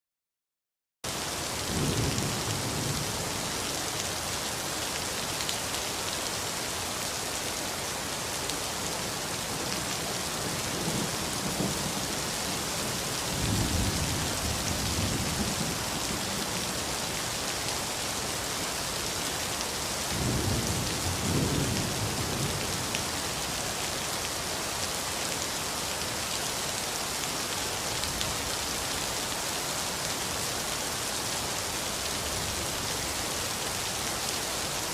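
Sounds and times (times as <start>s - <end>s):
rain falling on street: 1.1s - 34.9s.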